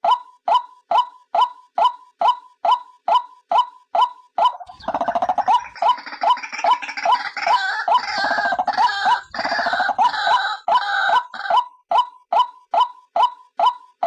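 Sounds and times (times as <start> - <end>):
harsh stuttering bird chatter: 4.5 - 11.5.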